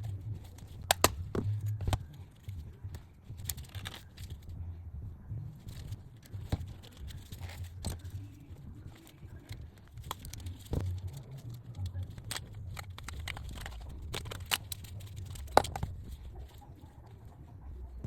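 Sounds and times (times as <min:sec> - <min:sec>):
low steady hum: 0:00.0 - 0:18.0
clicks of small hard parts: 0:00.4 - 0:02.0, 0:09.0 - 0:16.6.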